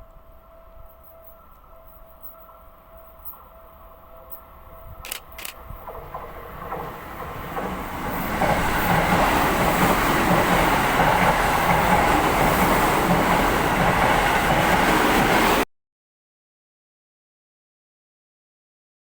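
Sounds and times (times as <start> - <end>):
electric train passing: 0.0 - 15.6
wheels rumbling on rail: 4.1 - 15.6.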